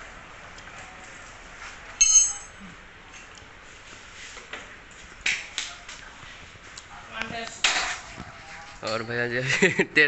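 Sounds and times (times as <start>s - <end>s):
metal tool clinking and ringing: 2.0s - 2.6s, 8.8s - 9.4s.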